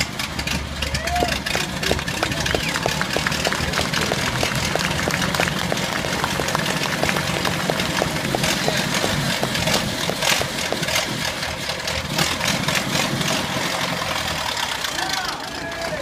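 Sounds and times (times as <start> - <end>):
car engine idling with ticking: 0.0 - 16.0.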